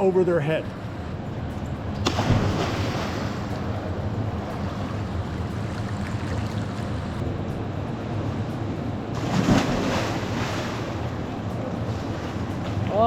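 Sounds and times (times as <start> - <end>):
water splashing around swimmers: 2.0 - 7.2, 9.1 - 13.0.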